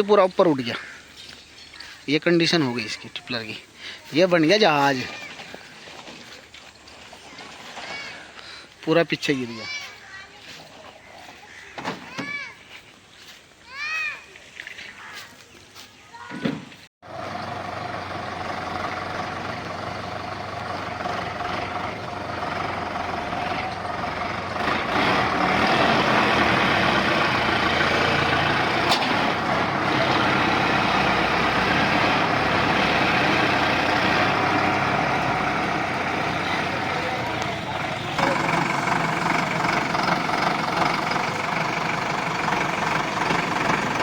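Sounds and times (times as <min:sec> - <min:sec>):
tractor engine running: 0:17.0 - 0:44.0.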